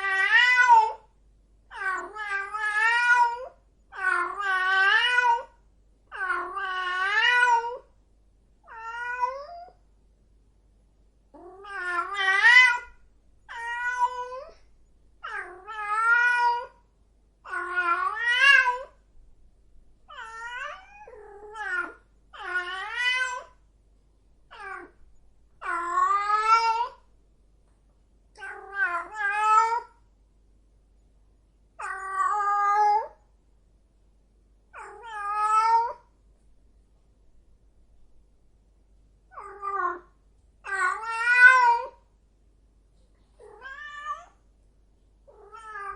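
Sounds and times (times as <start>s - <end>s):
cat meowing: 0.0s - 1.1s, 1.7s - 7.9s, 8.6s - 9.8s, 11.4s - 14.6s, 15.2s - 16.8s, 17.4s - 19.0s, 20.1s - 23.6s, 24.5s - 25.0s, 25.6s - 27.1s, 28.4s - 30.0s, 31.8s - 33.2s, 34.8s - 36.1s, 39.3s - 42.0s, 43.4s - 44.4s, 45.3s - 45.9s.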